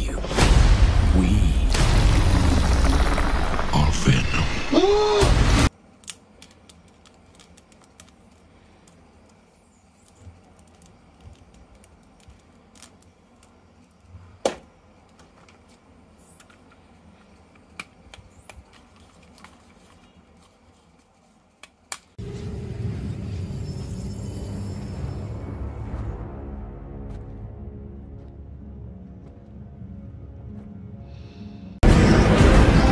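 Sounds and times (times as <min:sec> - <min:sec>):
music: 0:22.2 - 0:32.9.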